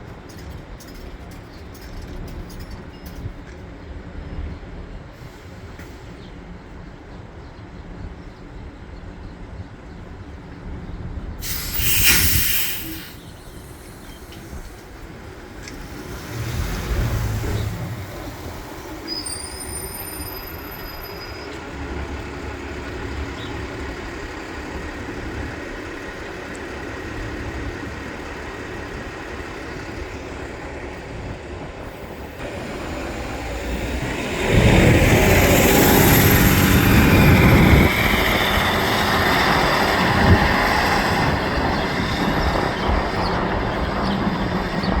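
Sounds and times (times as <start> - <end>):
bus engine accelerating: 11.2 - 45.0.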